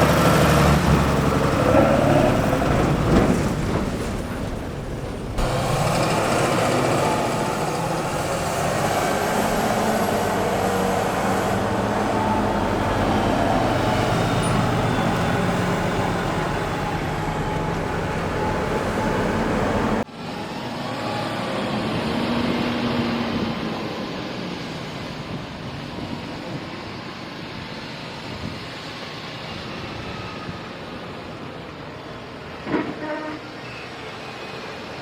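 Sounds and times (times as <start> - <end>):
heavy farm machinery running: 0.0 - 20.1.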